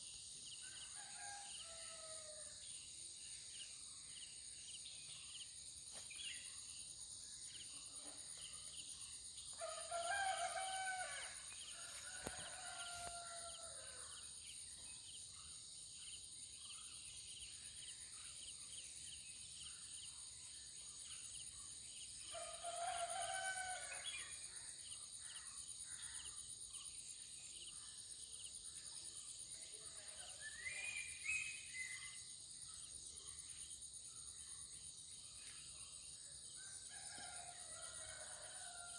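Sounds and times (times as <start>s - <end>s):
rooster crowing: 9.6s - 14.0s, 22.5s - 24.0s.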